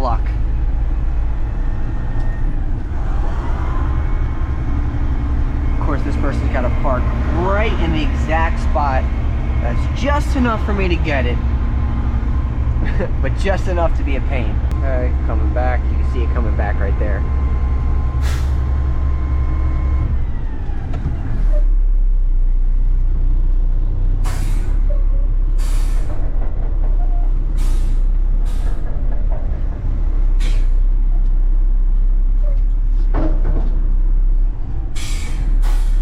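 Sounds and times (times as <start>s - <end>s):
garbage truck diesel engine: 0.0s - 36.0s
short air hisses: 24.2s - 24.8s, 25.6s - 26.1s, 30.4s - 30.8s, 35.0s - 36.0s.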